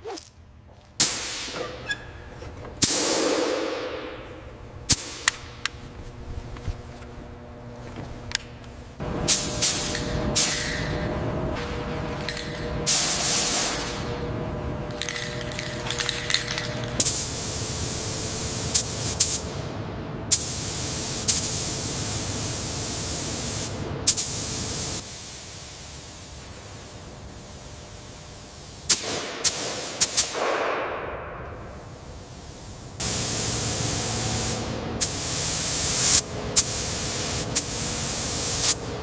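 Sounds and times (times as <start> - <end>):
paint spray gun hissing: 9.3 - 11.0, 12.2 - 14.1, 14.9 - 19.5, 20.3 - 30.3, 31.7 - 39.0.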